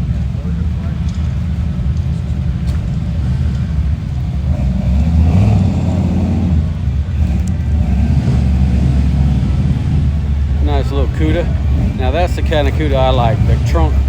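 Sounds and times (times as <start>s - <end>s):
car engine rumbling passing by: 0.0s - 14.0s.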